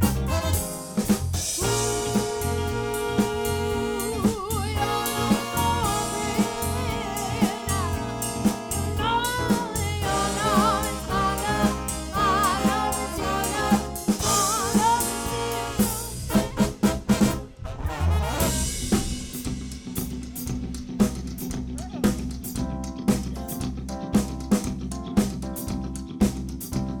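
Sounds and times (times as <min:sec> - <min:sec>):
lead melody line: 0:00.0 - 0:01.0, 0:01.6 - 0:17.6
live soul band playing: 0:00.0 - 0:26.9
drum kit beat: 0:00.0 - 0:27.0.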